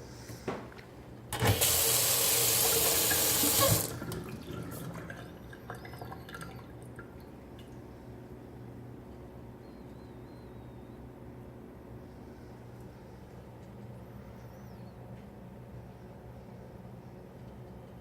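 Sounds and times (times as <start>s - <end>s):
faucet water running into sink: 1.4s - 5.3s.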